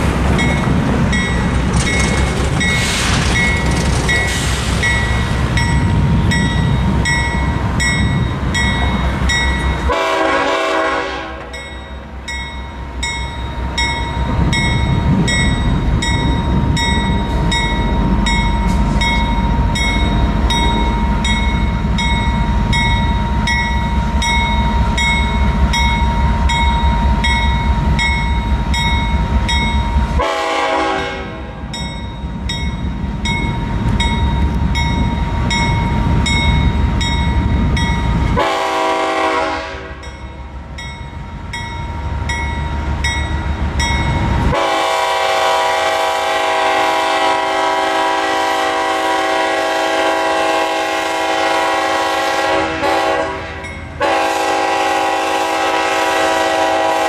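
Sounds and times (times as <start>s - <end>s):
crossing bell ringing: 0.0s - 46.2s, 52.1s - 54.4s
freight train rumbling: 0.0s - 57.0s
train air horn blasts: 9.9s - 11.6s, 30.1s - 31.7s, 38.3s - 40.1s, 44.5s - 57.0s.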